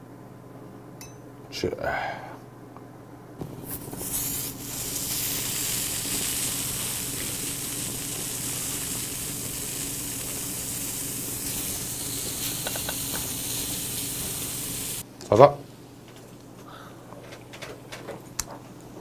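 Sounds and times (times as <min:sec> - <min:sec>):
seafood sizzling on a grill: 0:03.5 - 0:15.0.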